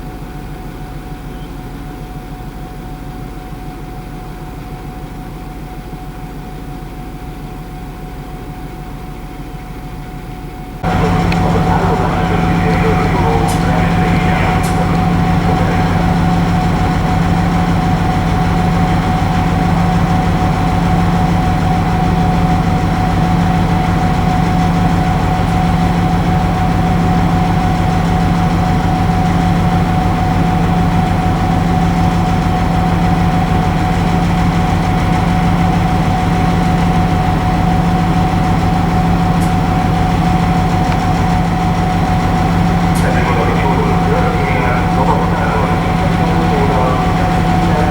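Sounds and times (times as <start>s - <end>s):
steady high whine: 10.8s - 27.0s, 39.2s - 47.9s
locomotive engine drone: 10.8s - 47.9s.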